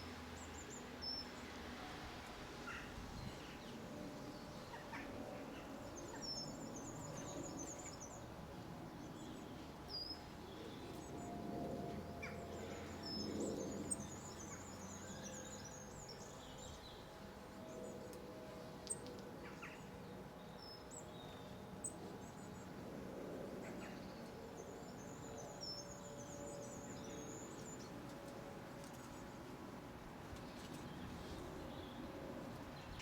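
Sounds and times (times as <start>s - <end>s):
low background noise: 0.0s - 33.0s
small birds twittering: 2.6s - 11.2s.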